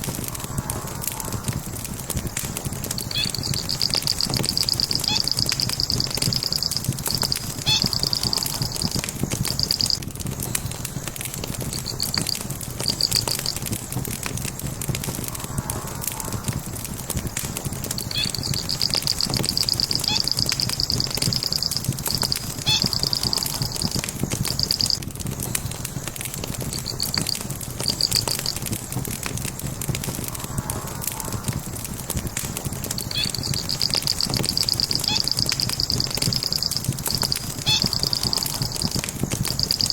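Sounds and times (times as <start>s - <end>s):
wood fire crackling: 0.0s - 39.9s
high-pitched chirping trills: 3.0s - 10.0s, 11.7s - 13.6s, 18.0s - 25.0s, 26.8s - 28.6s, 33.0s - 39.9s.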